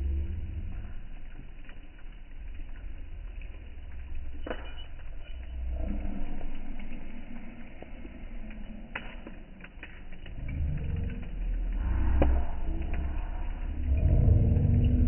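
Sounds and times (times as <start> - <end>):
low fire rumble: 0.0 - 15.0
wood crackling and popping: 0.0 - 15.0.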